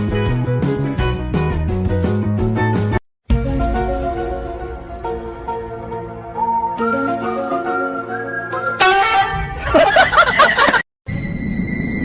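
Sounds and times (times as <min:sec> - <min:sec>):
background music with guitar: 0:00.0 - 0:09.4.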